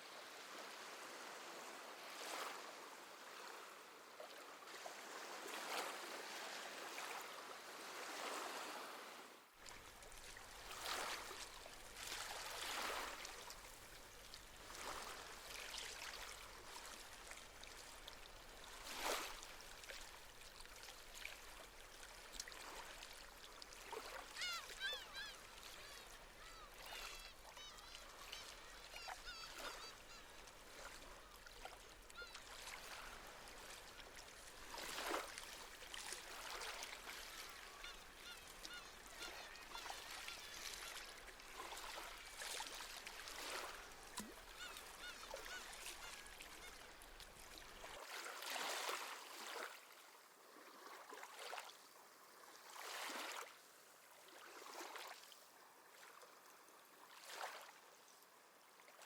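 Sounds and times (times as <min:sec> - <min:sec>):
small waves washing on shore: 0:00.0 - 0:57.9
seabirds calling: 0:24.2 - 0:33.0, 0:37.3 - 0:40.9, 0:44.5 - 0:47.0.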